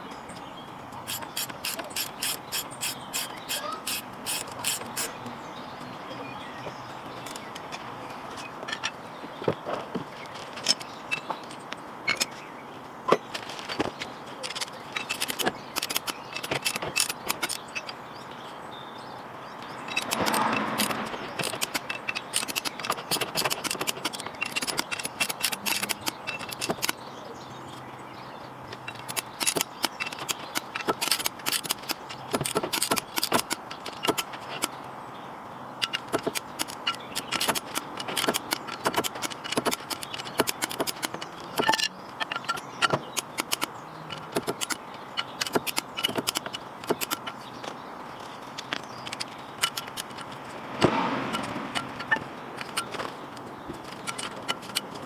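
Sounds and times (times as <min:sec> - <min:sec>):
metallic clicks of hand tools: 0:00.9 - 0:05.2, 0:14.4 - 0:18.0, 0:19.8 - 0:27.0, 0:28.7 - 0:34.8, 0:35.8 - 0:47.5, 0:48.6 - 0:55.0
scraping rustle: 0:13.2 - 0:18.0, 0:35.8 - 0:55.0.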